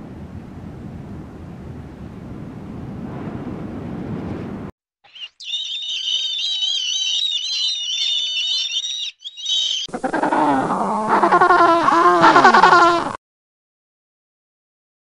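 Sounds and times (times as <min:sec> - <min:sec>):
gull calling: 0:05.1 - 0:13.2
penguin braying: 0:05.4 - 0:13.2.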